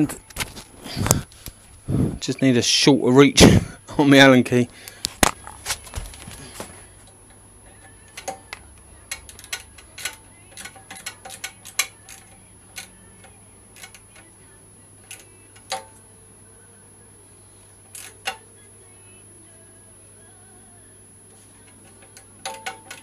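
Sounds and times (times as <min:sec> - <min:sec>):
allen key clicking on bolt: 0:07.8 - 0:14.3, 0:21.7 - 0:23.0.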